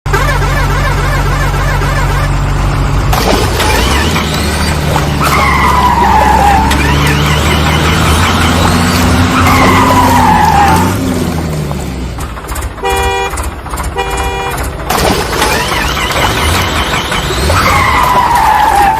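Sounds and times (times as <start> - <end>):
heavy vehicle engine rumbling: 0.1 - 18.9
horn tooting: 12.8 - 14.8.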